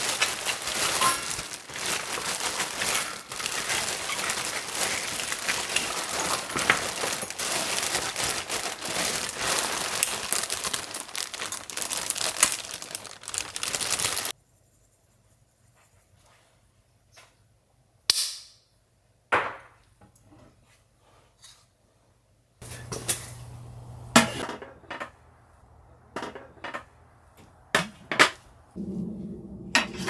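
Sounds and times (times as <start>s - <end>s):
wood fire crackling and popping: 0.0s - 14.4s.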